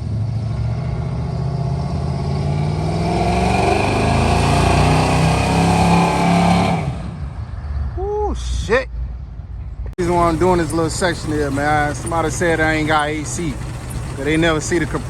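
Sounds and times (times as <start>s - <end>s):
car engine revving: 0.7s - 7.2s, 10.0s - 15.0s.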